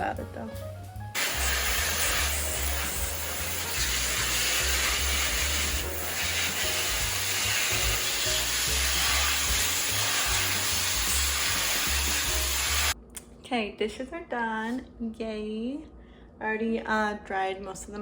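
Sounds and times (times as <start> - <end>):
water running from a tap: 1.2 - 13.0.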